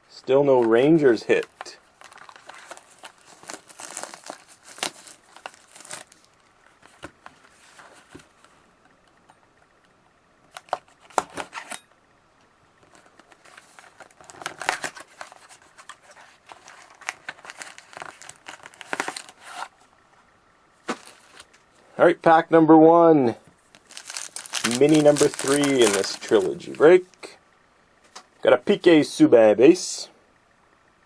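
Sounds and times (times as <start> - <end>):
plastic wrapping crinkling: 1.3 - 8.4, 12.8 - 19.8, 20.8 - 21.6, 23.6 - 27.4.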